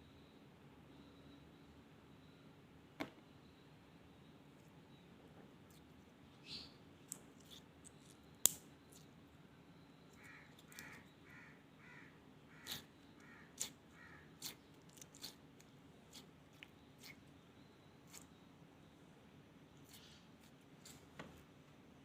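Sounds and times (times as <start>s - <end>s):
faint caw-like bird calls: 10.1s - 15.3s.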